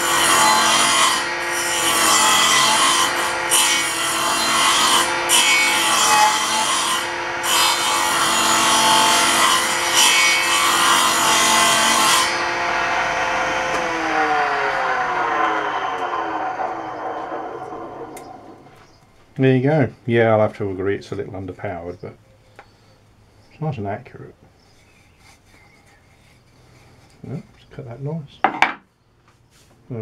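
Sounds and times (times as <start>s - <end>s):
table saw blade cutting wood: 0.0s - 19.0s, 28.4s - 28.8s
saw motor hum: 0.0s - 19.1s.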